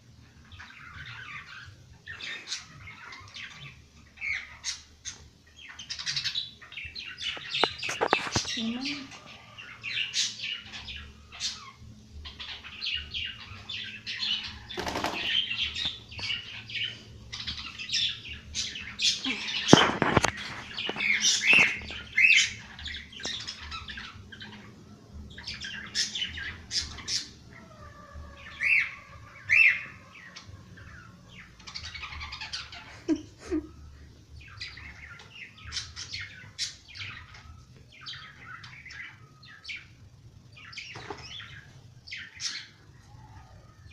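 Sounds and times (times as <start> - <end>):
small birds chirping: 0.0 - 43.9
wings fluttering: 7.4 - 8.7, 14.6 - 16.4, 19.6 - 22.1.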